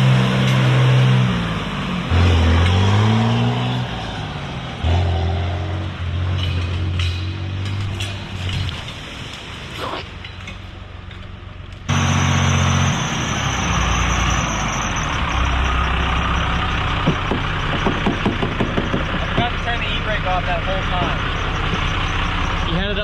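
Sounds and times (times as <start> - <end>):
truck engine driving: 0.0 - 23.0
sharp knocks: 17.0 - 19.5.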